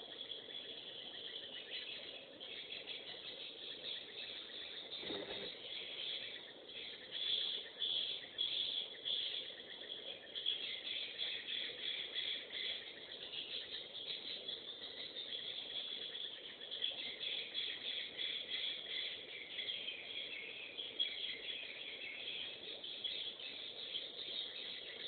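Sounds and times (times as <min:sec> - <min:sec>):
birds chirping and twittering: 0:00.0 - 0:25.0.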